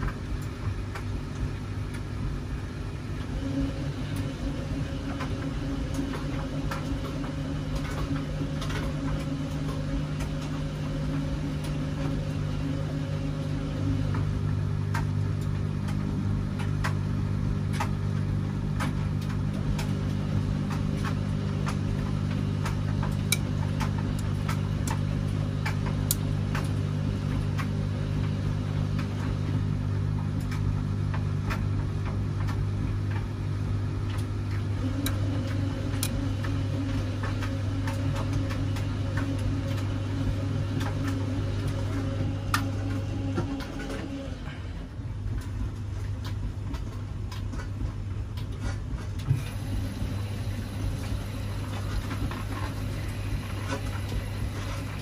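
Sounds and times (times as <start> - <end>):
washing machine motor hum: 0.0 - 55.0.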